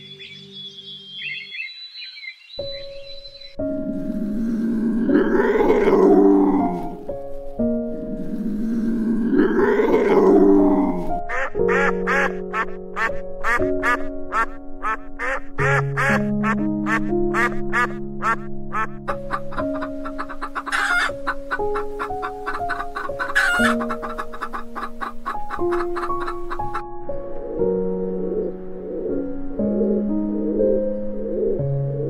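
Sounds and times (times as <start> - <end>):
background music with chords: 2.6 - 32.0
big cat roaring: 4.1 - 7.0, 8.4 - 11.2
fowl calls: 11.3 - 26.8.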